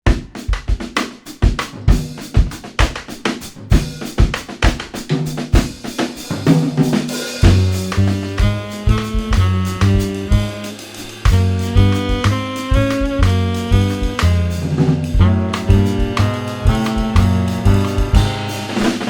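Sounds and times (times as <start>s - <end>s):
jazz drum kit groove: 0.0s - 19.0s
band playing held chords: 7.3s - 19.0s
pitched low notes: 7.4s - 19.0s.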